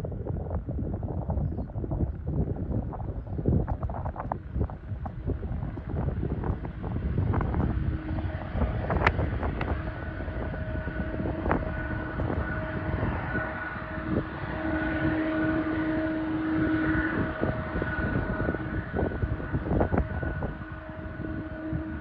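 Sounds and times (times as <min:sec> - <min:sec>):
jet engine rumble: 0:00.0 - 0:22.0
jet engine whine: 0:00.0 - 0:22.0.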